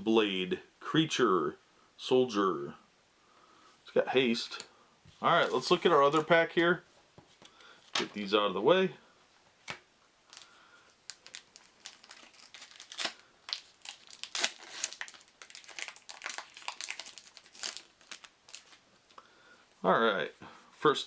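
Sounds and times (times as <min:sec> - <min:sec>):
plastic wrapper crinkling and tearing: 0:10.3 - 0:19.2.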